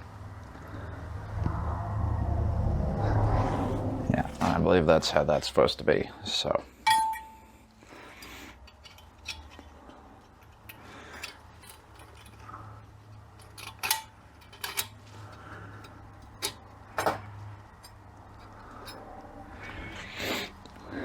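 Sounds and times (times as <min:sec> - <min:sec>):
steady low hum: 0:00.0 - 0:21.0
metal parts clinking: 0:06.8 - 0:19.1
metallic ping: 0:06.9 - 0:07.6.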